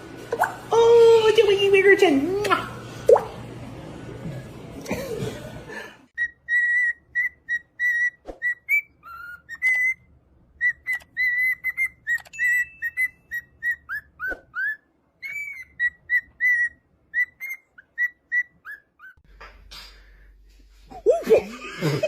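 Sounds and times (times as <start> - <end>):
parrot whistling: 6.2 - 19.2.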